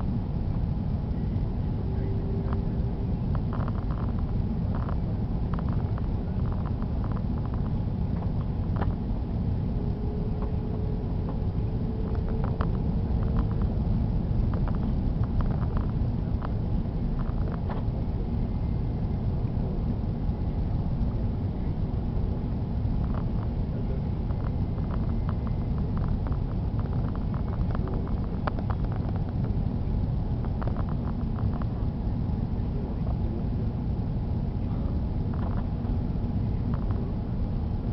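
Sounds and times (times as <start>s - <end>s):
aircraft cabin engine rumble: 0.0s - 37.9s
small rattles and ticks: 3.3s - 9.0s, 12.0s - 13.8s, 14.4s - 16.6s, 24.2s - 29.6s, 30.3s - 31.8s.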